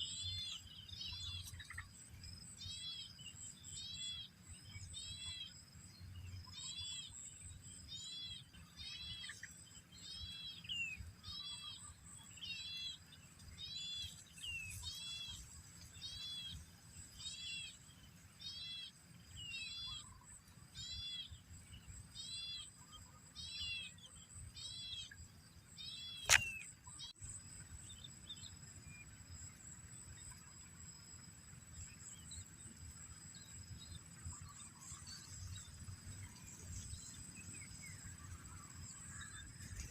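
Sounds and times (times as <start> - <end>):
bird chirping: 0.0 - 27.2
sharp click: 26.2 - 26.7.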